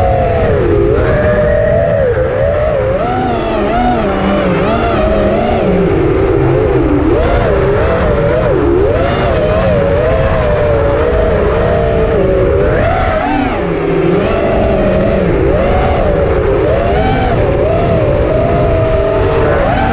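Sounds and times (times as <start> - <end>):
drone motors whining: 0.0 - 19.9.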